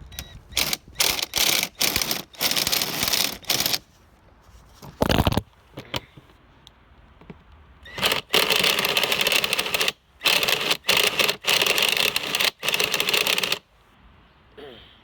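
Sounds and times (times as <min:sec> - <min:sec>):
power drill rattling buzz: 0:00.0 - 0:03.8, 0:07.9 - 0:13.6.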